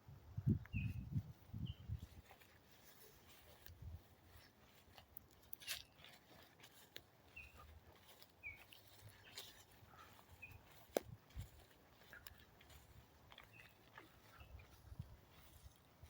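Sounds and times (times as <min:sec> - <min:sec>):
faint bird chirps: 0:07.2 - 0:10.9.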